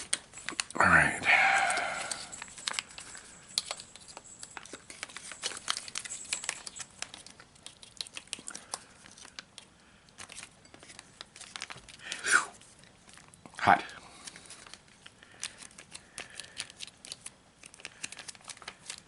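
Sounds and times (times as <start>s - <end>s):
food pouch crinkling: 1.4s - 13.4s, 14.1s - 19.0s.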